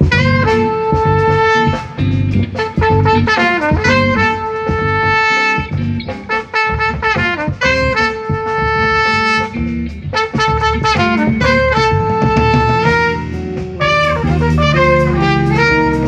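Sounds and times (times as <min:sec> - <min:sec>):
bass: 0:00.0 - 0:16.0
drums: 0:00.0 - 0:16.0
trumpet lead: 0:00.0 - 0:16.0.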